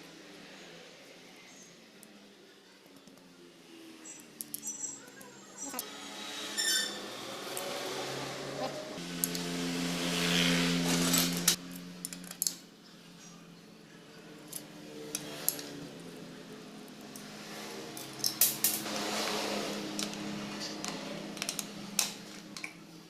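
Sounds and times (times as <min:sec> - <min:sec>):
metal tools clinking and scraping: 0:04.1 - 0:05.9, 0:10.8 - 0:12.6, 0:17.9 - 0:22.7.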